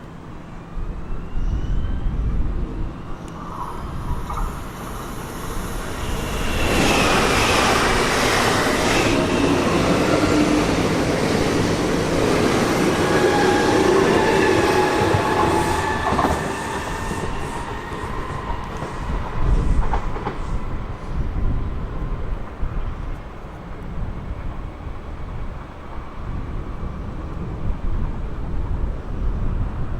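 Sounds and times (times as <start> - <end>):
wheels whining and squealing: 1.1 - 22.1
train wheels rumbling on rail: 1.6 - 29.9.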